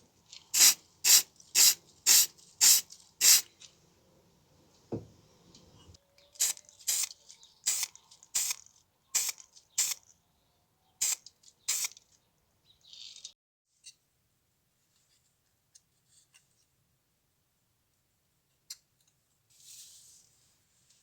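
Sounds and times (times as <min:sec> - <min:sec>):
short hissing spray bursts: 0:00.5 - 0:03.5, 0:06.4 - 0:07.1, 0:07.7 - 0:08.6, 0:09.2 - 0:10.0, 0:11.0 - 0:12.0
low thump: 0:04.9 - 0:05.1.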